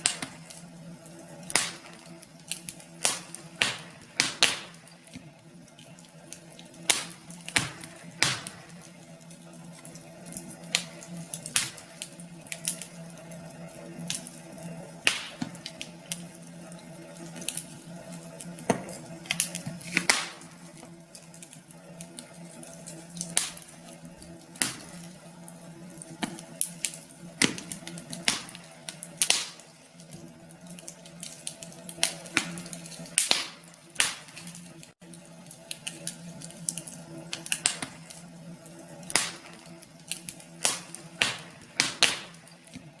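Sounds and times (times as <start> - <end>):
wood fire crackling and popping: 0.0 - 43.0.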